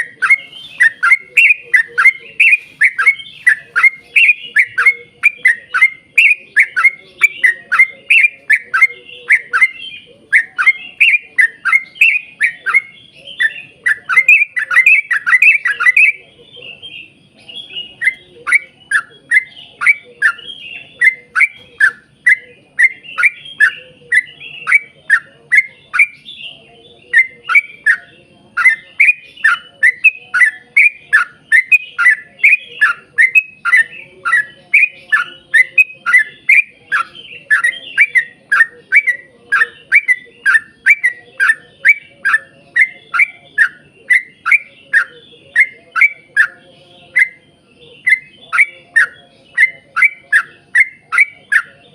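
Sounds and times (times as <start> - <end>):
bird whistling song: 0.0 - 51.9.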